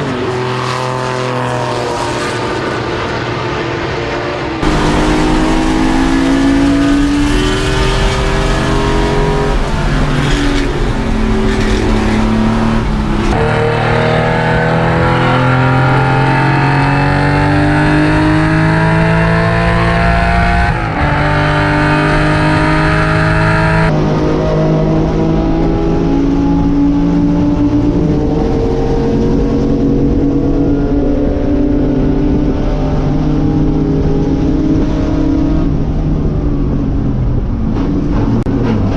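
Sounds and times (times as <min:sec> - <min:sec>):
racing car engine accelerating: 0:00.0 - 0:36.8.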